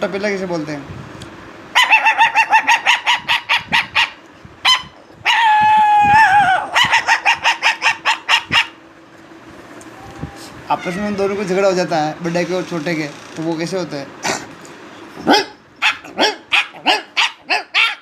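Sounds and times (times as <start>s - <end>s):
man imitating puppy yips and whine: 1.8s - 8.8s, 10.0s - 11.4s, 15.1s - 18.0s.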